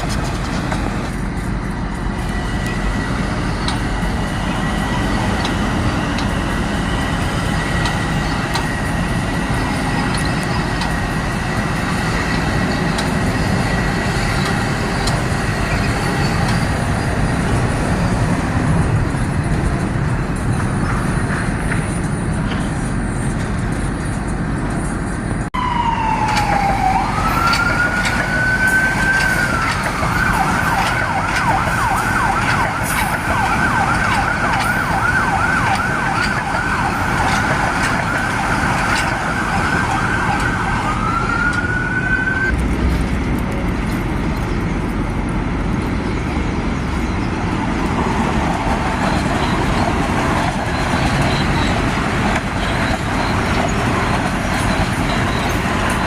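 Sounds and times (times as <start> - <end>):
street traffic noise: 0.0 - 56.0
emergency vehicle siren wailing and yelping: 25.6 - 42.6.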